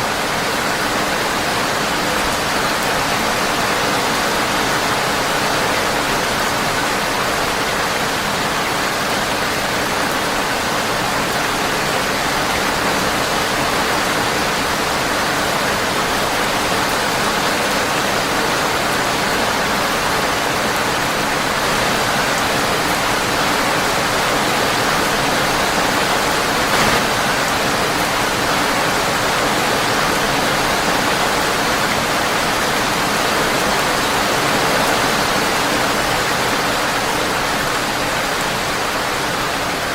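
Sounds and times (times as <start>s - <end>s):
rain on a windowpane: 0.0s - 39.9s
brief crack: 26.7s - 27.6s.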